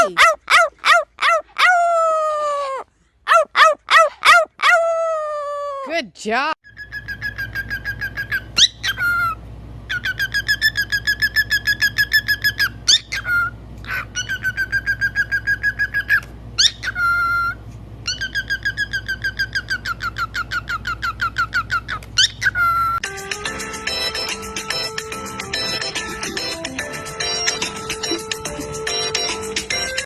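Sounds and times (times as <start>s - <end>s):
parrot trilling: 0.0s - 5.6s, 6.6s - 23.0s, 23.9s - 30.0s
parrot rising whistle: 6.7s - 23.0s.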